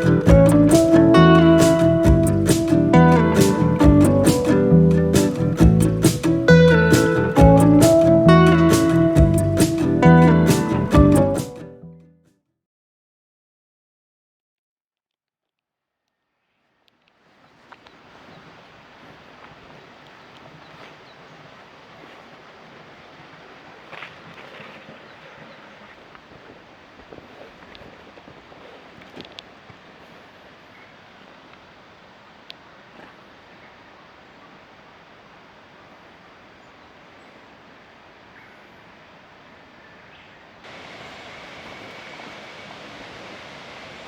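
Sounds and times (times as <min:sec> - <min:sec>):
rushing water: 0:00.0 - 0:11.6, 0:17.2 - 0:44.0
waterfall rushing: 0:00.0 - 0:11.6, 0:40.6 - 0:44.0
faint clicks: 0:32.4 - 0:33.2.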